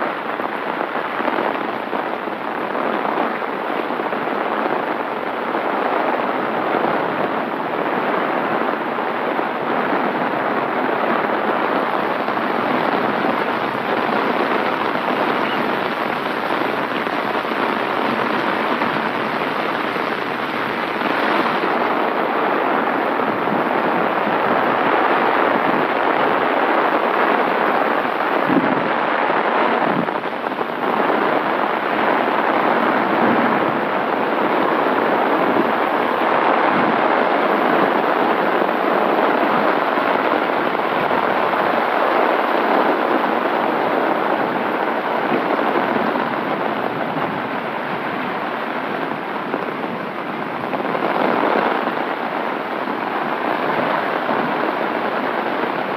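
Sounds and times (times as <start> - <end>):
heavy rain drumming on umbrella: 0.0 - 55.9.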